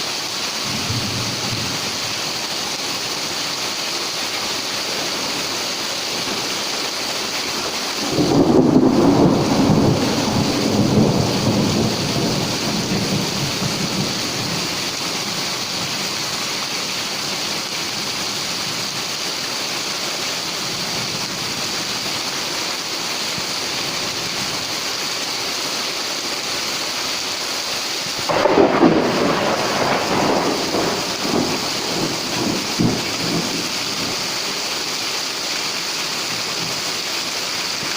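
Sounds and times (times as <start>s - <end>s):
heavy rain: 0.0s - 37.9s
thunder claps rumbling: 8.0s - 14.7s, 28.3s - 34.2s.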